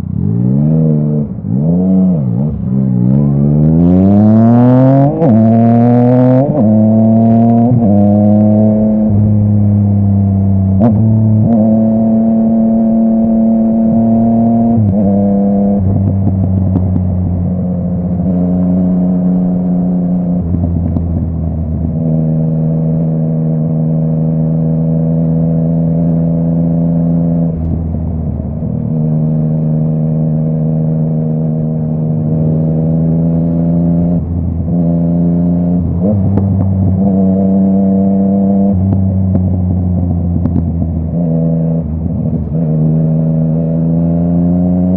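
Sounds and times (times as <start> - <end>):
motorcycle engine shifting gears: 0.0 - 44.9
exhaust pops: 38.8 - 41.2.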